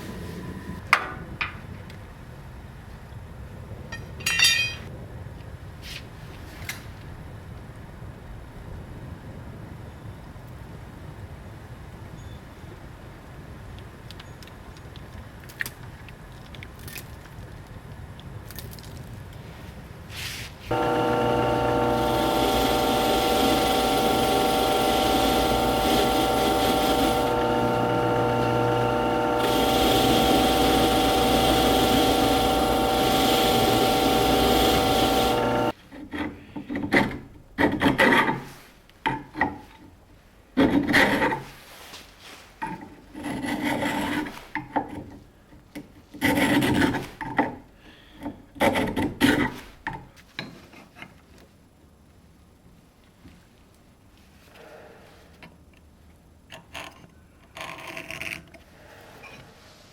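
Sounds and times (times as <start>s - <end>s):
power grinder humming: 20.7s - 35.8s.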